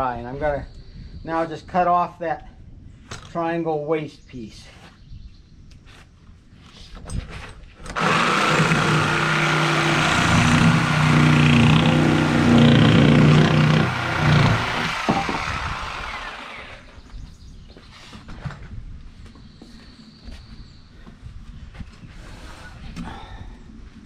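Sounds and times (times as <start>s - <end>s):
reciprocating saw cutting wood: 7.9s - 17.0s.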